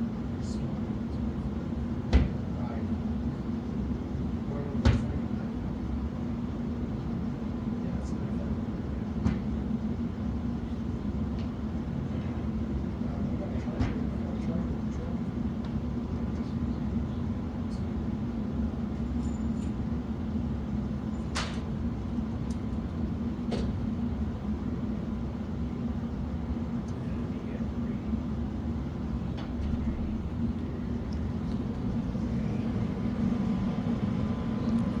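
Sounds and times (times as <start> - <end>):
low mechanical rumble with hum: 0.0 - 35.0.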